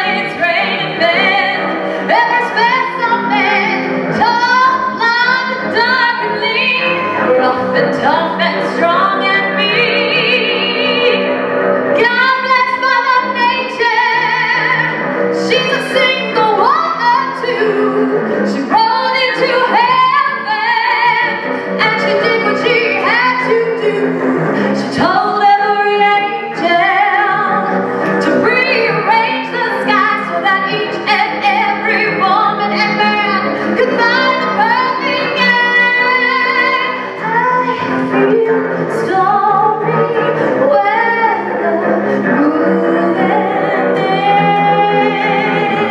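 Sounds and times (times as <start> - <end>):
woman singing: 0.0 - 11.3, 12.0 - 45.9
bowed string accompaniment: 0.0 - 45.9.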